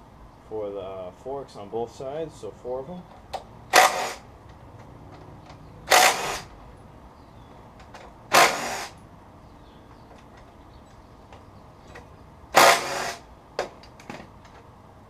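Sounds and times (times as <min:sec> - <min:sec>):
power tool running: 0:03.7 - 0:04.3, 0:05.9 - 0:06.5, 0:08.3 - 0:09.0, 0:12.5 - 0:13.3.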